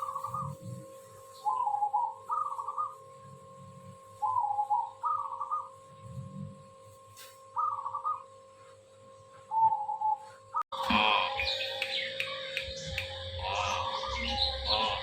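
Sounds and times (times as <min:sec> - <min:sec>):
dove cooing: 0:00.0 - 0:00.8, 0:01.4 - 0:03.2, 0:04.2 - 0:06.3, 0:07.5 - 0:08.3, 0:09.5 - 0:11.8, 0:13.4 - 0:15.0
faint steady hum: 0:00.0 - 0:15.0.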